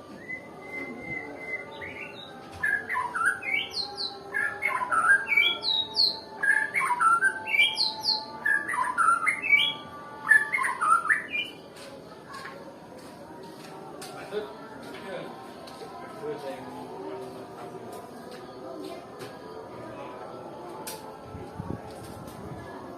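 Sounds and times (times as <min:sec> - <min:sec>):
bird singing whistled notes: 0:00.1 - 0:11.6.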